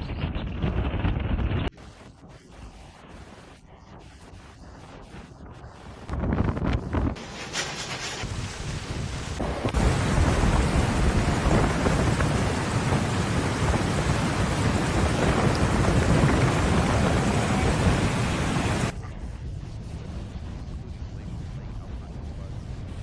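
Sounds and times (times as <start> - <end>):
heavy rain pouring: 7.6 - 19.0.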